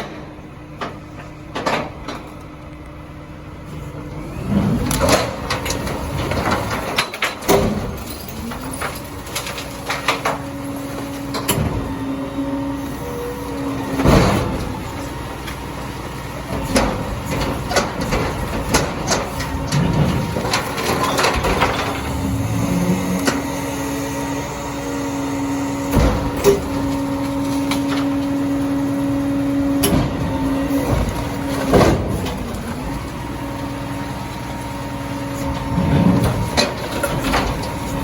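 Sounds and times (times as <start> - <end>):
truck engine and hydraulics humming: 0.0 - 38.0
metal clanks and bangs: 4.9 - 10.6, 16.4 - 23.7, 29.4 - 33.2.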